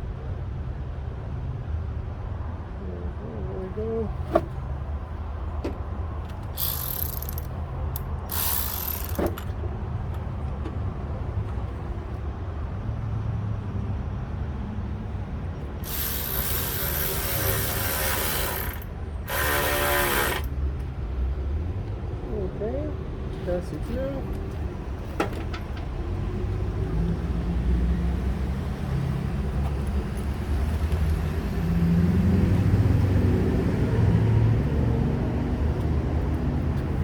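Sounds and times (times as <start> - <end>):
ratchet clicking: 6.4 - 9.5, 15.8 - 20.5.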